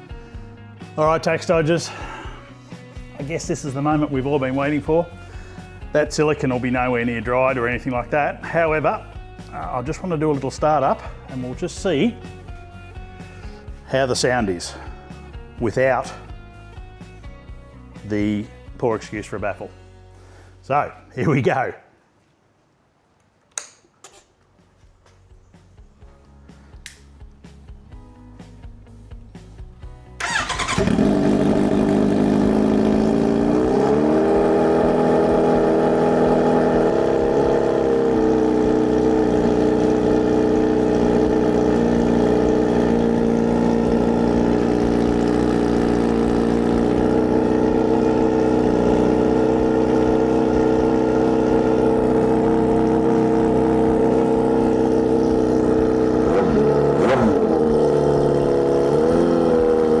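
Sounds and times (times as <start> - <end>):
motorcycle engine idling loud: 30.2 - 60.0.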